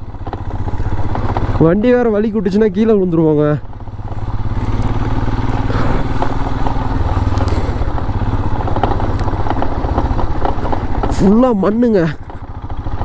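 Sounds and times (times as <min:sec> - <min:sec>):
clattering and rattling over bumps: 0:00.0 - 0:13.0
motorcycle engine running: 0:00.0 - 0:13.0.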